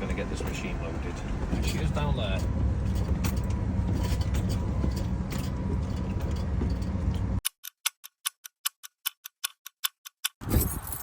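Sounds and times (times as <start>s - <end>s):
lorry engine idling: 0.0s - 7.4s
clock ticking: 7.4s - 10.4s.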